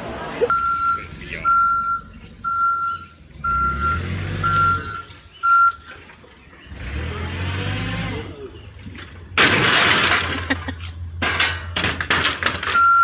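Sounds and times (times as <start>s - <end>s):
truck engine rumble: 0.0s - 13.0s
vehicle reversing alarm beeping: 0.5s - 5.9s, 12.7s - 13.0s.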